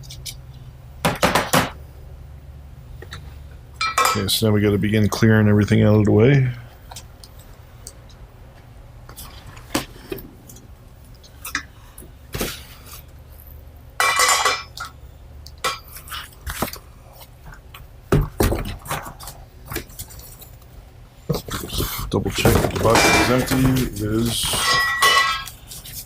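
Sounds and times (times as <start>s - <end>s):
low steady hum: 0.0s - 26.0s
parts clinking and knocking: 3.8s - 4.4s, 14.0s - 15.0s, 22.4s - 25.6s.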